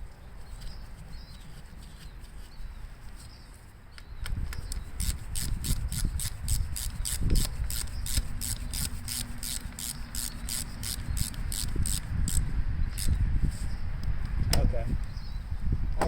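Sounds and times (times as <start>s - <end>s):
handling and rubbing noise: 0.0s - 3.9s, 13.3s - 13.9s
socket ratchet clicking: 4.5s - 12.4s, 13.0s - 13.2s.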